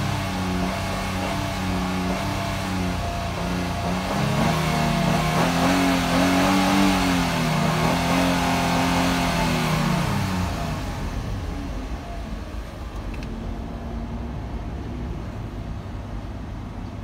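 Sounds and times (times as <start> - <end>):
car engine revving: 0.0 - 13.2.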